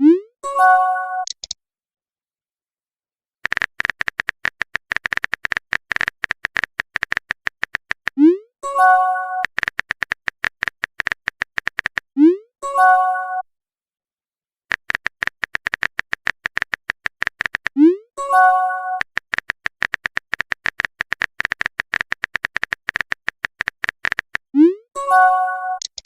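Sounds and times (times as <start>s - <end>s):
phone keyboard typing clicks: 1.2s - 1.6s, 3.4s - 8.2s, 9.4s - 12.1s, 14.7s - 17.8s, 18.9s - 24.5s, 25.8s - 26.0s.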